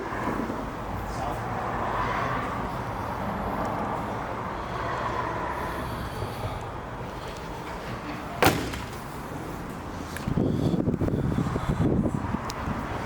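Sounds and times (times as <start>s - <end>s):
vehicle rumble with hum: 0.0s - 13.0s
sharp knock: 8.4s - 9.1s.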